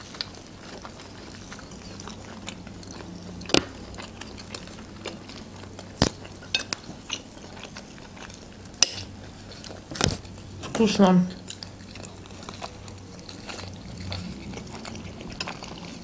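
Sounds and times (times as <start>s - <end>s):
chewing and biting flatbread: 0.0s - 10.7s, 11.3s - 16.0s.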